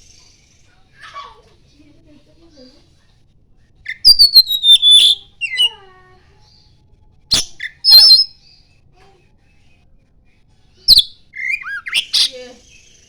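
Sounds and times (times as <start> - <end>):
bird singing: 3.9 - 5.9, 7.3 - 8.7, 10.9 - 13.0.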